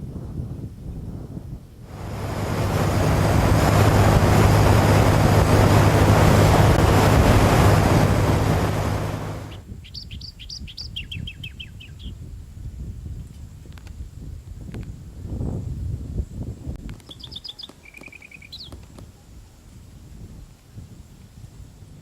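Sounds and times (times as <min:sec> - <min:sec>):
vehicle passing by: 0:01.9 - 0:09.6.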